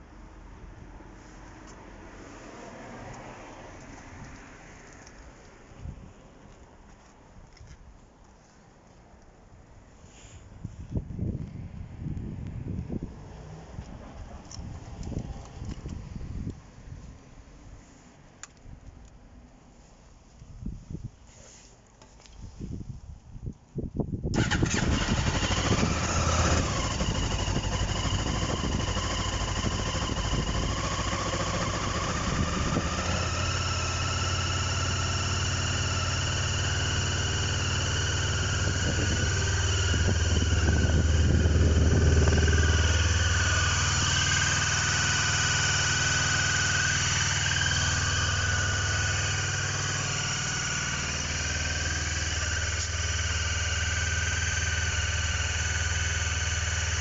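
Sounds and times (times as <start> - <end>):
motorcycle engine idling: 24.4 - 57.0.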